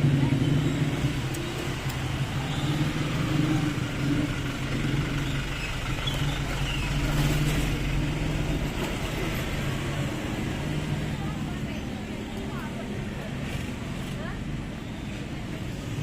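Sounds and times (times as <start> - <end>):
truck engine running low revs: 0.0 - 12.3.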